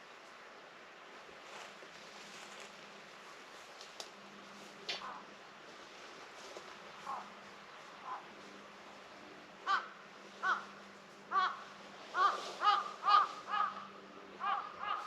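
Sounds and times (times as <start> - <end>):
bird calling: 8.0 - 8.3, 9.6 - 10.7, 11.3 - 15.0.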